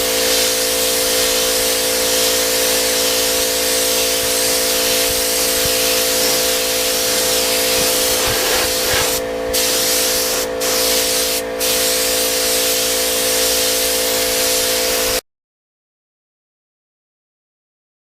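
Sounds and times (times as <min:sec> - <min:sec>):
air spray gun hissing: 0:00.0 - 0:15.2
steady hum: 0:00.0 - 0:15.2.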